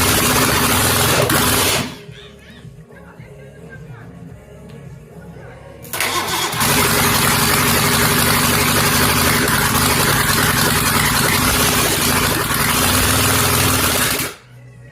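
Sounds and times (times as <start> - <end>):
engine starting and running: 0.0 - 2.2, 5.8 - 14.5.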